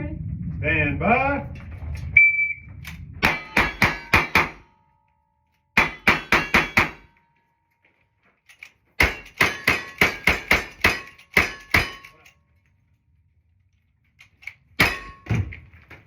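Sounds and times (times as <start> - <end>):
gunshots: 3.2 - 4.7, 5.8 - 7.1
metallic ring of steel targets: 3.2 - 7.6, 8.5 - 12.4, 14.3 - 15.6.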